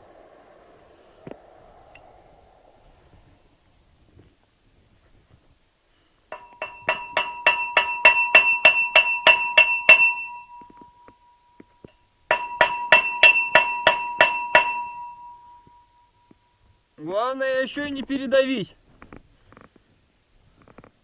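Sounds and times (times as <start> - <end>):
stone hammering on steel: 6.3 - 10.8, 12.3 - 15.4.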